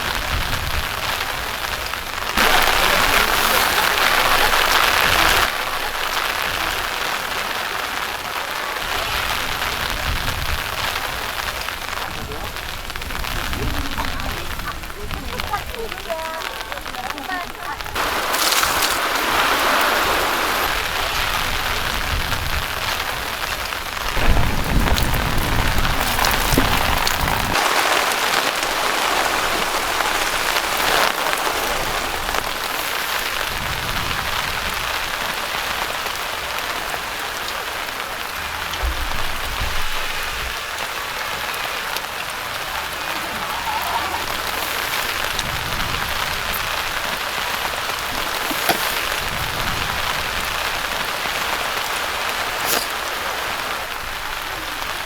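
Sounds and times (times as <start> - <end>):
steady rain: 0.0 - 55.0
low rumbles: 17.8 - 35.1.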